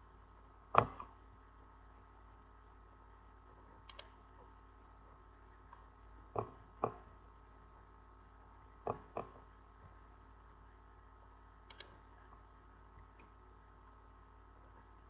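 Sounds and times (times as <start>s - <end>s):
faint electrical hum: 0.0s - 15.0s
sharp clicks: 3.9s - 4.2s, 11.7s - 12.0s.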